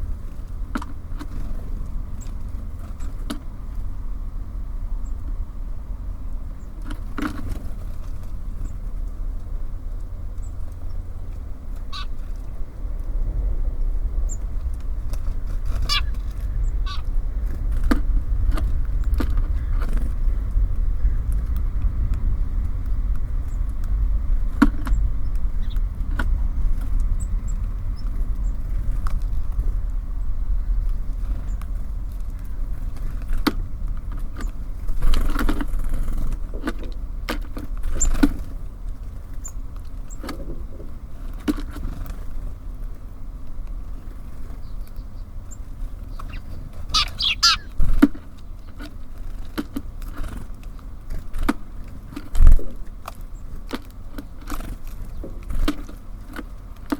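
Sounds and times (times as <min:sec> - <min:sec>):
city traffic rumble: 0:00.0 - 0:56.9
birds pecking at a feeder: 0:00.1 - 0:05.6, 0:06.2 - 0:56.9
bird chirps: 0:11.9 - 0:12.6, 0:15.6 - 0:17.1, 0:44.6 - 0:48.0
rustling bursts: 0:45.6 - 0:48.4.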